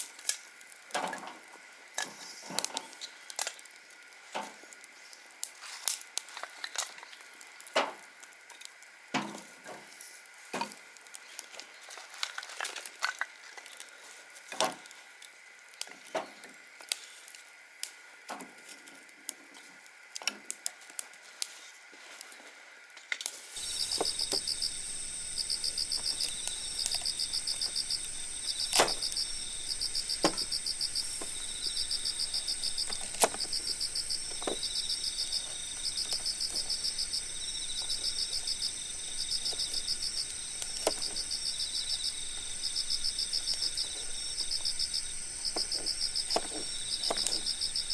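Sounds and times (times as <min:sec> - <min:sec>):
campfire crackling and popping: 0:00.0 - 0:16.2, 0:16.8 - 0:21.5, 0:22.9 - 0:47.9
crickets chirping: 0:23.6 - 0:47.9.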